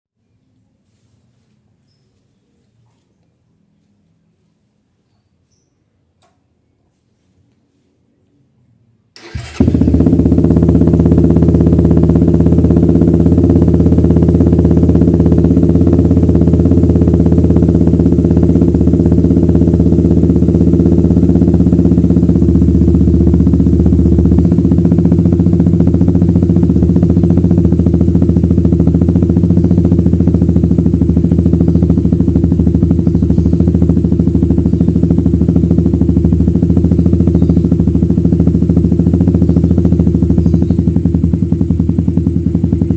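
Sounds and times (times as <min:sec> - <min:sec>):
motorcycle engine starting and idling: 0:09.1 - 0:42.9.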